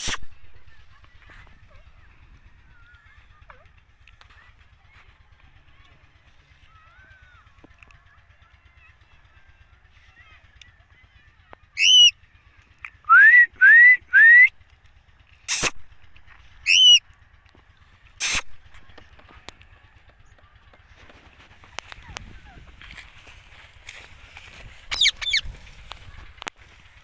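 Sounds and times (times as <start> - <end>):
parakeet rising whistles: 11.8 - 12.1, 16.6 - 17.0, 24.9 - 25.4
parakeet squawking: 11.8 - 12.1, 16.6 - 17.0, 24.8 - 25.5.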